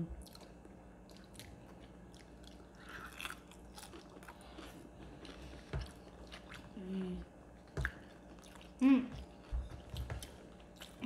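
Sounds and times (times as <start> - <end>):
crunching fried chicken: 0.2 - 6.8.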